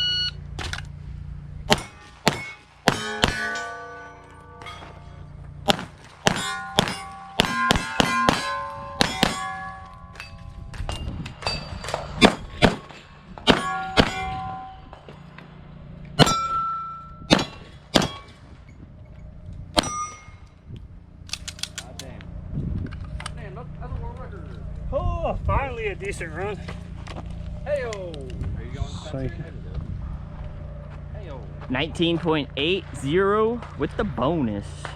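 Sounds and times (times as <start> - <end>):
pistol shots: 1.7 - 3.6, 5.6 - 9.7, 12.2 - 14.3, 17.3 - 18.4
steel plate ringing: 1.7 - 20.6.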